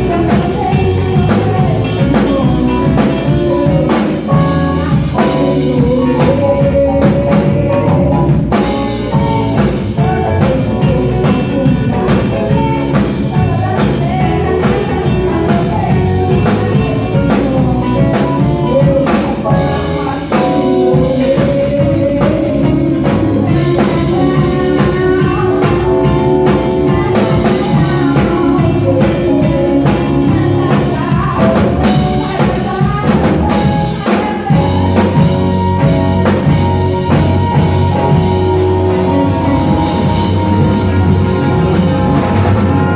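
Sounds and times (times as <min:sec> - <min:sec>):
drum kit beat: 0:00.0 - 0:42.9
live rock band playing: 0:00.0 - 0:42.9.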